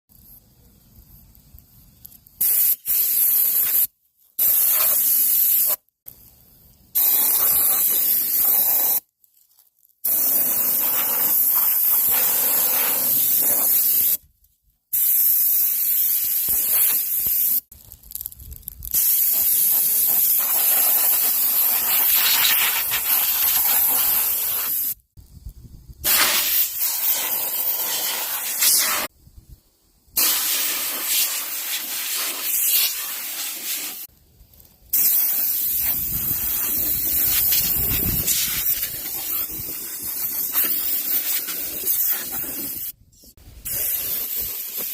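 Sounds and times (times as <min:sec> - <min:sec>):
forceful water spray hissing: 0:02.4 - 0:05.8, 0:07.0 - 0:09.0, 0:10.1 - 0:14.2, 0:15.0 - 0:17.6, 0:19.0 - 0:25.0, 0:26.0 - 0:29.1, 0:30.2 - 0:34.1, 0:35.0 - 0:43.0, 0:43.6 - 0:44.9.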